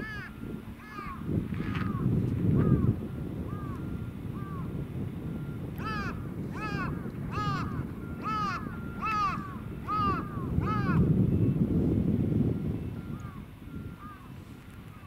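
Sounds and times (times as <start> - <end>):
bird calling: 0.0 - 4.8, 5.4 - 11.6, 12.8 - 15.0
wind rumble on microphone: 0.0 - 15.0.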